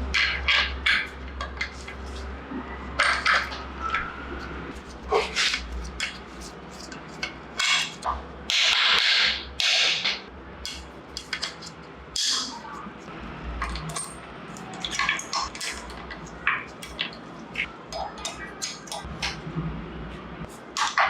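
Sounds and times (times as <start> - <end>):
metal tools clinking and knocking: 13.6 - 17.1.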